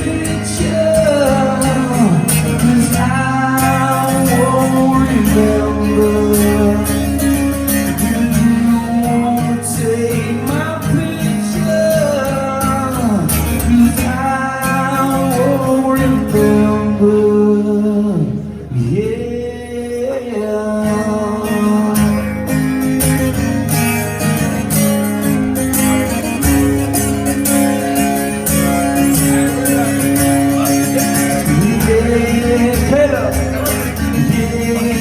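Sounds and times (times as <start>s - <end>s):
man singing: 0.0s - 23.0s, 27.4s - 35.0s
strummed acoustic guitar: 0.0s - 35.0s.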